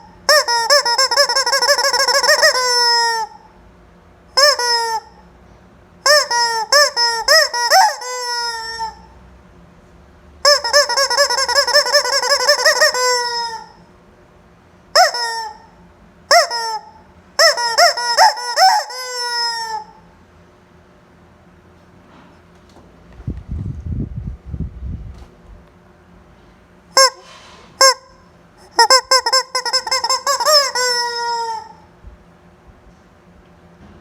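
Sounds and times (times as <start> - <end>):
rubber chicken toy squawking: 0.0 - 3.5, 4.4 - 5.2, 6.0 - 9.1, 10.4 - 13.8, 15.0 - 20.1, 27.0 - 31.9.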